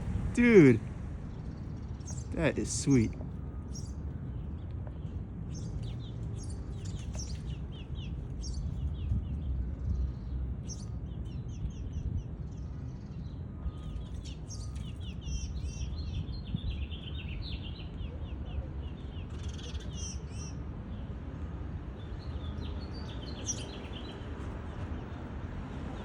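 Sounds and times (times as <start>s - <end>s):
steady low rumble: 0.0s - 5.6s
small songbirds chirping: 0.0s - 26.0s.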